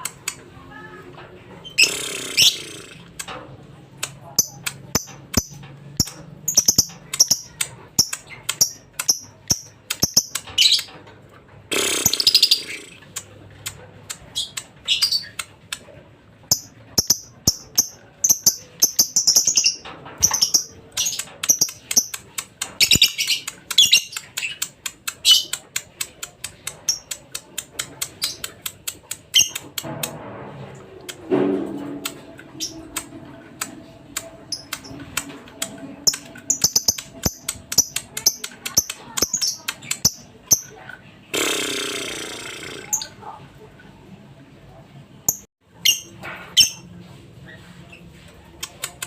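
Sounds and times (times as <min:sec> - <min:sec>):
bird chirping and clicking: 0:00.0 - 0:00.5, 0:01.6 - 0:03.4, 0:04.0 - 0:11.1, 0:12.0 - 0:29.9, 0:32.0 - 0:40.9.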